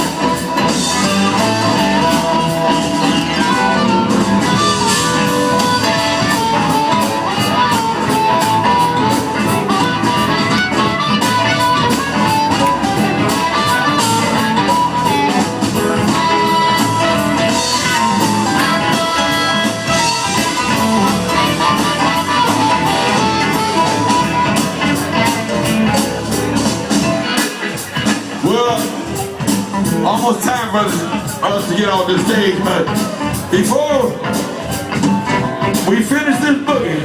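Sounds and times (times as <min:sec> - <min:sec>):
electric blues band playing: 0:00.0 - 0:37.0
electric guitar line: 0:00.0 - 0:37.0.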